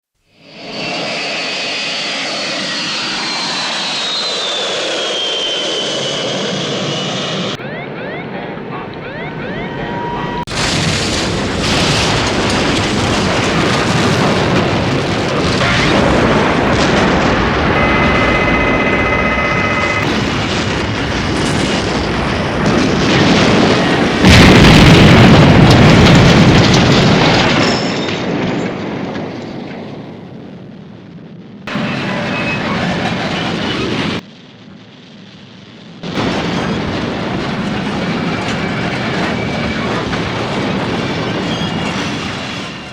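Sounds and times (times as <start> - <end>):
jet engines running: 0.5 - 26.7, 31.7 - 34.2, 36.2 - 42.9
dense continuous rumble: 8.8 - 42.9
loud explosion: 9.3 - 29.3, 35.9 - 42.5
high turbine whine: 15.6 - 24.4.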